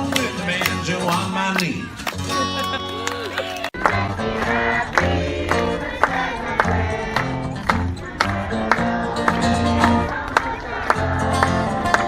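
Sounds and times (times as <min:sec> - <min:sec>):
live country band music: 0:00.0 - 0:05.8.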